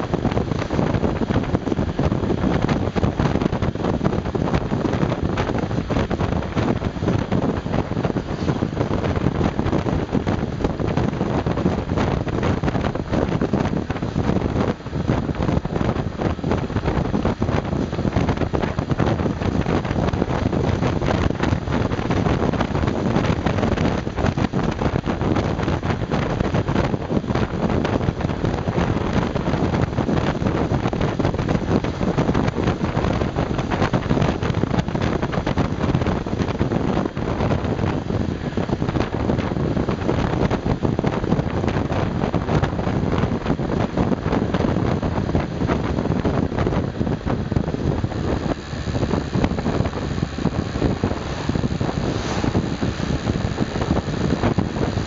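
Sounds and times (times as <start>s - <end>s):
wind rushing over microphone: 0.0s - 55.0s
motorcycle engine running: 27.6s - 55.0s.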